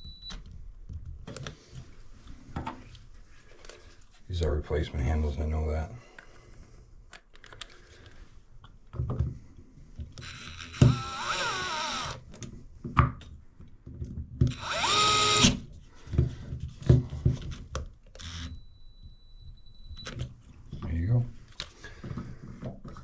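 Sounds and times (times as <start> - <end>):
knocks and clicks of parts: 10.1 - 12.1
power drill whining: 10.2 - 12.2, 14.5 - 15.7, 18.2 - 18.6.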